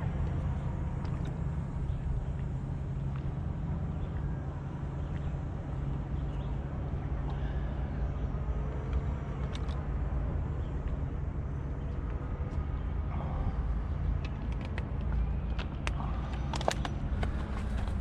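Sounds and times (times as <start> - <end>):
wind buffeting microphone: 9.2 - 18.0.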